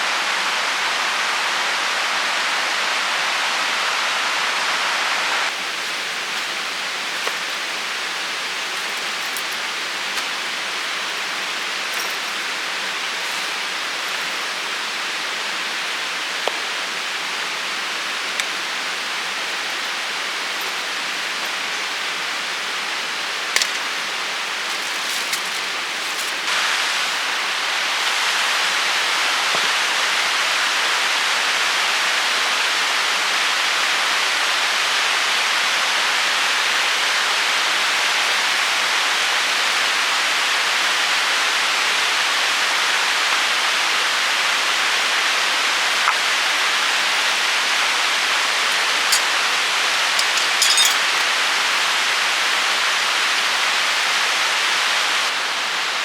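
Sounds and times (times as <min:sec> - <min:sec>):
steady hiss: 0:00.0 - 0:56.0.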